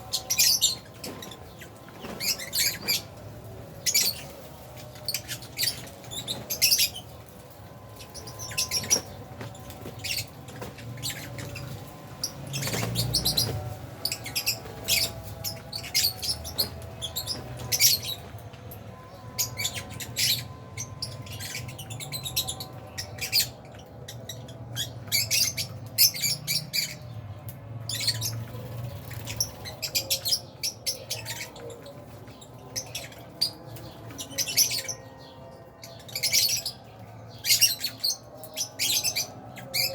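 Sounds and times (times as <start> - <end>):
lovebirds chirping and squawking: 0.0 - 39.9.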